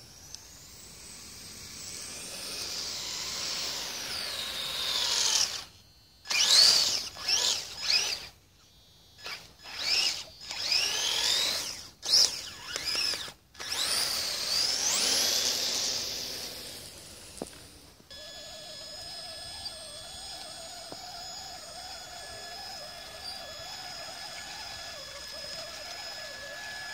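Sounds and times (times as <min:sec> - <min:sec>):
steady hum with high tones: 0:00.0 - 0:12.6
electric motors whining: 0:00.0 - 0:26.9.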